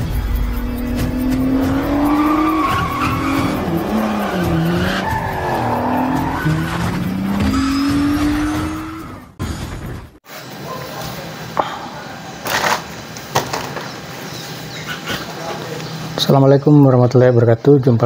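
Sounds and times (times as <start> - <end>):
car engines revving: 0.0 - 10.2
music: 0.0 - 10.2
tyre squeal: 1.7 - 9.3.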